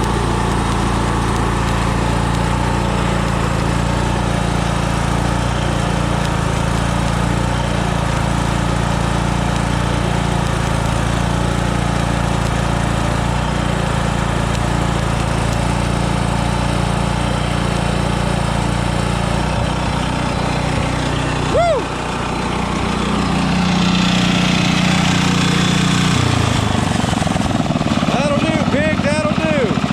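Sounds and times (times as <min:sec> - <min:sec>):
welding generator engine running: 0:00.0 - 0:29.9.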